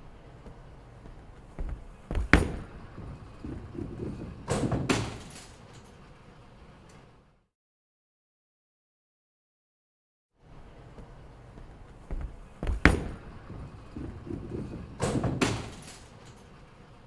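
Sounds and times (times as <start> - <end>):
sharp knocks or thumps: 1.6 - 5.2, 12.1 - 15.8.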